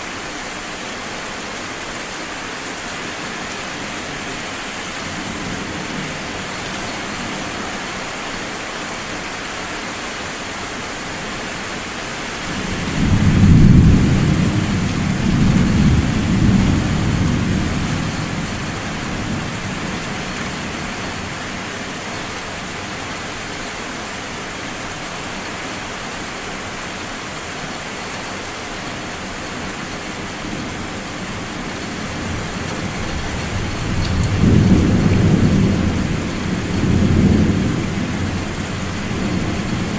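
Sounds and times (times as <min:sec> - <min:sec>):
steady rain: 0:00.0 - 0:39.9
rolling thunder: 0:12.6 - 0:20.0, 0:30.5 - 0:39.9.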